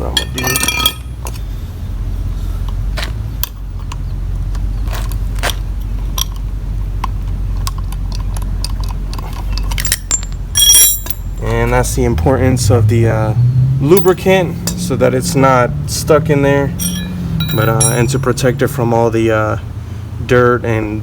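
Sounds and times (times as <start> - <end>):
light metallic clicks and clinks: 0.1 - 1.4, 7.6 - 11.6, 16.7 - 18.3
ringing metallic clink: 0.2 - 1.2, 9.8 - 11.4, 16.7 - 18.3.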